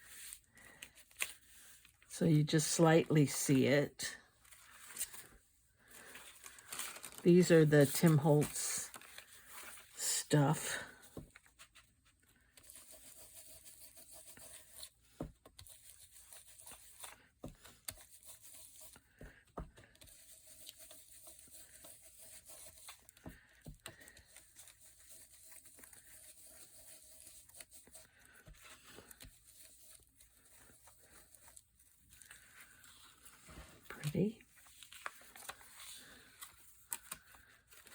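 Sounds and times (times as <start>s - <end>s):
paper rustling: 4.4s - 10.0s, 10.9s - 37.9s.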